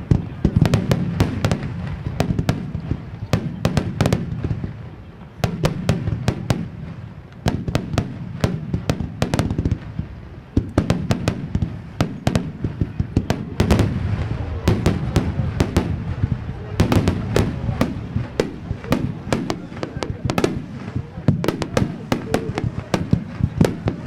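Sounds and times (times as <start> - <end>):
low rumble: 13.4 - 18.7.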